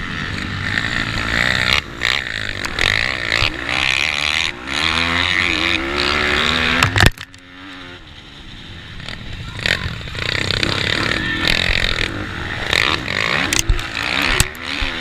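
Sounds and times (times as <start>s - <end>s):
motorbike engine racing: 0.0s - 15.0s.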